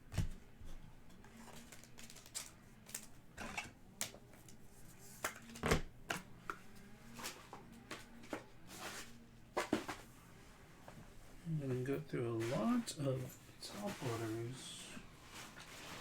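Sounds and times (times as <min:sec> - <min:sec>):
trading cards being handled: 0:01.3 - 0:03.2.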